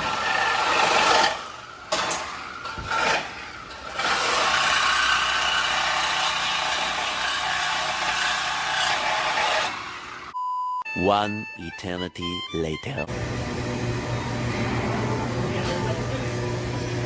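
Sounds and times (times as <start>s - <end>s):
road noise: 13.1s - 17.0s.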